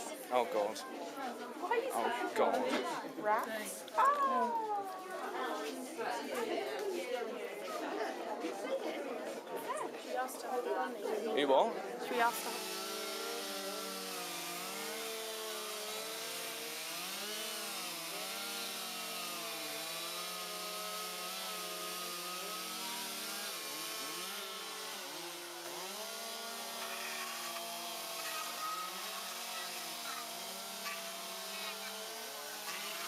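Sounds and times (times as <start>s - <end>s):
small engine running: 11.5s - 33.0s.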